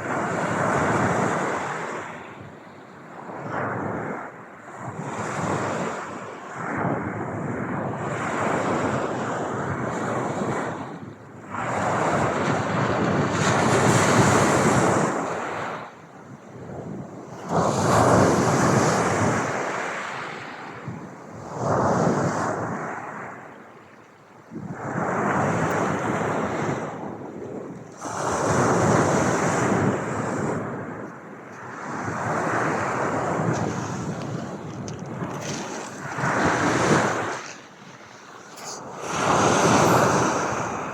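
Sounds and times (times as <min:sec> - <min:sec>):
waves washing in: 0:03.1 - 0:16.0, 0:16.8 - 0:23.7, 0:24.5 - 0:40.9
ocean waves breaking: 0:31.6 - 0:40.9.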